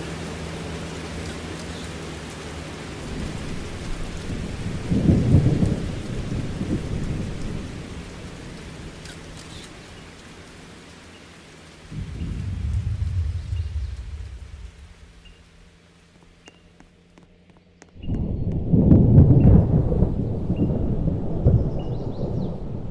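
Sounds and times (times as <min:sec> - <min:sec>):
steady rain hiss: 0:00.0 - 0:22.9
low rumble: 0:11.9 - 0:16.4, 0:18.0 - 0:22.9.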